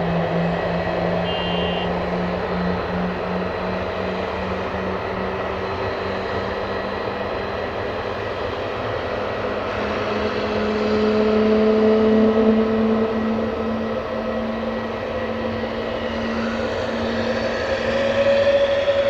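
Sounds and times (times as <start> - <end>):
jet engines humming and whining: 0.0 - 19.0.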